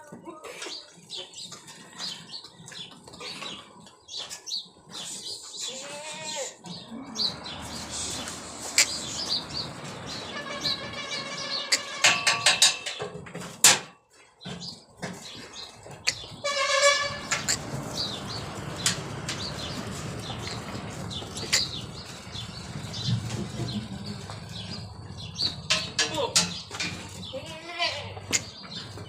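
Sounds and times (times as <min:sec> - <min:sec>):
goat bleating: 0:05.6 - 0:06.6, 0:27.2 - 0:28.5
knocks and clatter: 0:09.3 - 0:27.3.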